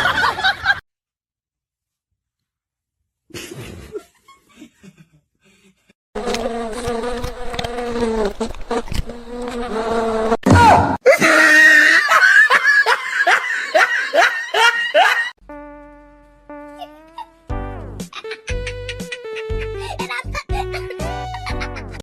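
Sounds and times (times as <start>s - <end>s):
insect-like buzz: 6.2s - 10.4s, 15.5s - 17.5s.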